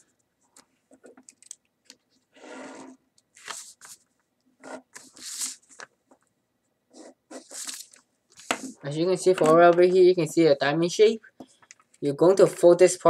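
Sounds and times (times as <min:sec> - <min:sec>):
paper rustling and creasing: 0:02.8 - 0:04.2, 0:04.8 - 0:06.0, 0:07.4 - 0:09.7.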